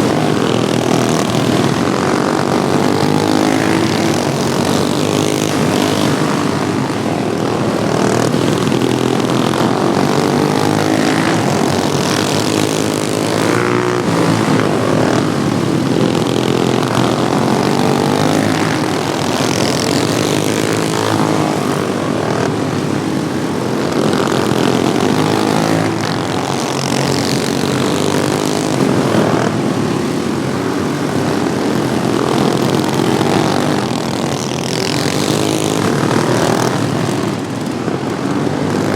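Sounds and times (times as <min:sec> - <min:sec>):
racing lawnmower engines: 0:00.0 - 0:38.9.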